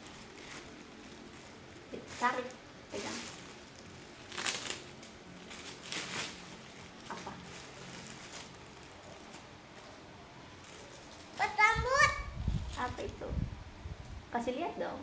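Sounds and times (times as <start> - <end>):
parcel wrapping crinkling: 0.0 - 13.2.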